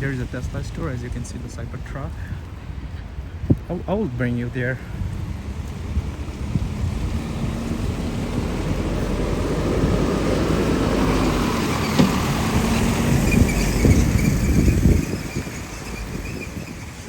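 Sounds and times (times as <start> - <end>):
motor vehicle rumbling: 0.0 - 17.0
knocks: 11.9 - 12.4.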